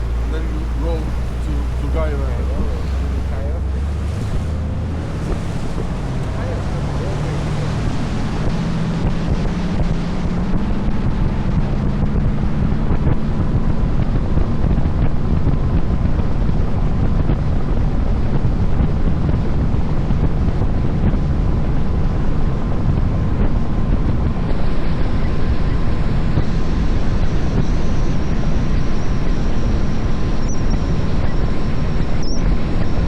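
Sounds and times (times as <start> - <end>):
water rushing past hull: 0.0 - 13.5
boat engine running: 0.0 - 33.0
wind buffeting microphone: 0.0 - 33.0.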